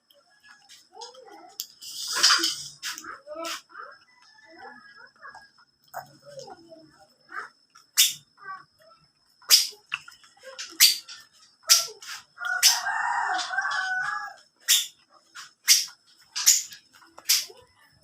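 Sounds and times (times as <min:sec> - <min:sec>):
rooster crowing: 0:04.0 - 0:05.3, 0:12.4 - 0:14.5.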